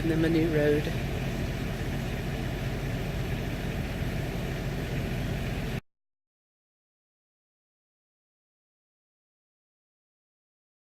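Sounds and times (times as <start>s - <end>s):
vehicle engine running: 0.0s - 5.8s.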